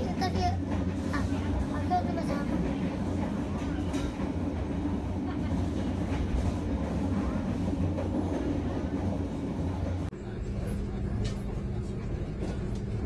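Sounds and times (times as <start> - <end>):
train rumble from on board: 0.0 - 13.0.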